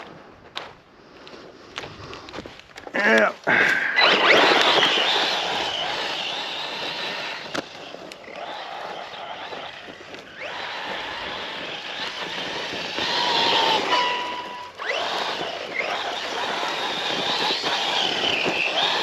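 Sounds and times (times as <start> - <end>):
tyres rushing on rough ground: 0.0 - 19.0
electric motor whining: 3.6 - 19.0.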